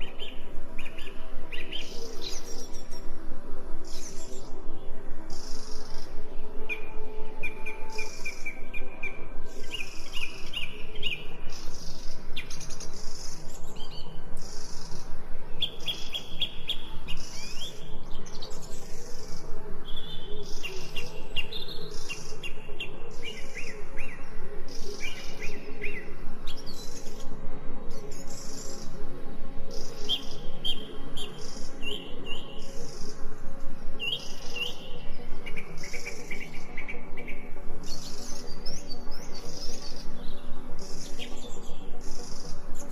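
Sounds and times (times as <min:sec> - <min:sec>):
birds chirping and singing: 0:00.0 - 0:42.9.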